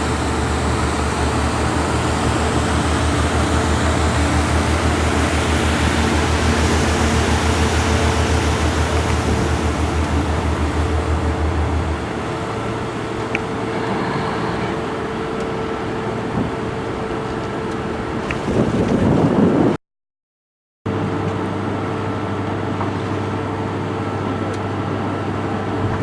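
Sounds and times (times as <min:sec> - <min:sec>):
steady mid tone: 0:00.0 - 0:18.4
boat engine low hum: 0:00.0 - 0:19.8, 0:20.9 - 0:26.0.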